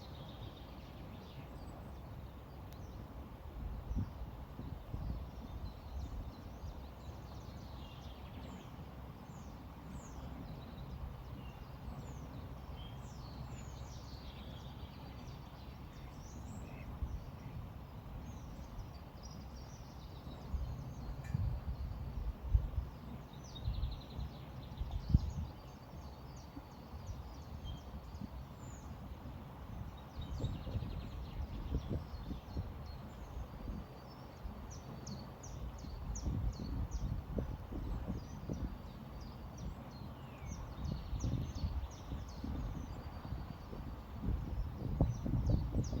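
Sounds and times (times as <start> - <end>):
small birds chirping: 3.9 - 46.0
low rumbles in gusts: 15.5 - 26.4, 27.4 - 46.0.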